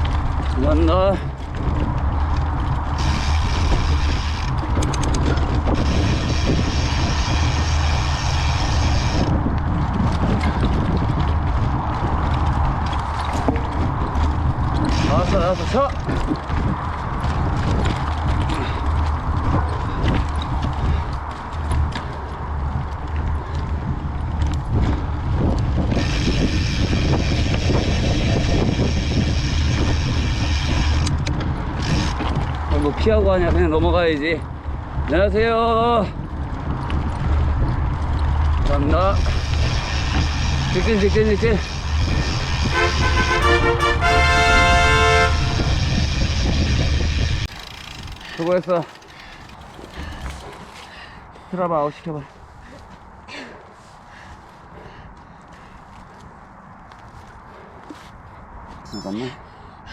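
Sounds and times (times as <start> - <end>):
tyre and wind rumble: 0.0 - 59.9
bike freehub ratchet buzzing: 1.2 - 13.3, 14.2 - 18.8, 25.2 - 32.6, 36.6 - 50.4
high buzz: 42.4 - 46.4
freehub clicks: 47.4 - 50.8.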